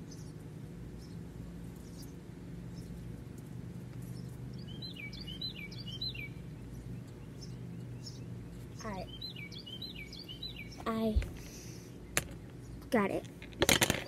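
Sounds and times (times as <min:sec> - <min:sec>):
steady low hum: 0:00.0 - 0:14.0
bird calling: 0:04.6 - 0:08.2, 0:08.8 - 0:11.9.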